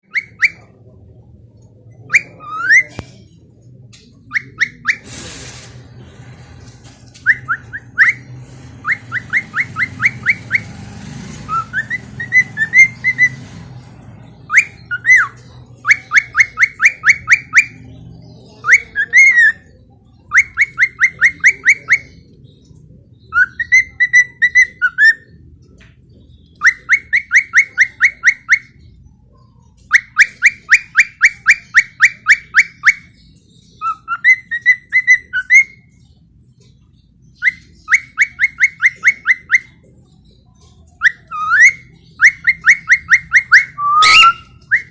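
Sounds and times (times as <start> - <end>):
cockatiel whistling: 0.1 - 0.7, 4.3 - 5.1, 7.2 - 10.7, 11.5 - 13.4, 14.5 - 17.8, 18.6 - 22.1, 26.6 - 28.8, 29.9 - 33.1, 33.8 - 36.0, 37.4 - 39.8, 41.0 - 44.9.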